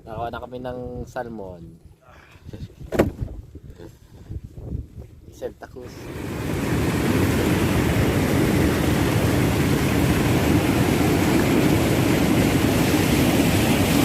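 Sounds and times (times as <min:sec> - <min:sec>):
wind: 0:00.0 - 0:14.0
water rushing: 0:05.8 - 0:14.0
boat motor: 0:05.9 - 0:14.0.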